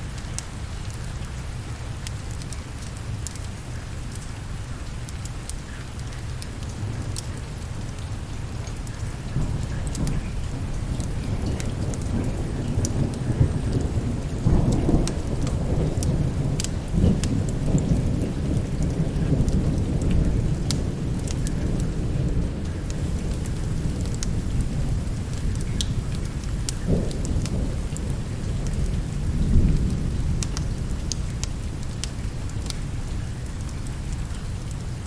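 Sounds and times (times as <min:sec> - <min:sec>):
steady rain: 0:00.0 - 0:35.0
wood fire crackling: 0:01.9 - 0:35.0
thunder rumbling: 0:08.5 - 0:33.1.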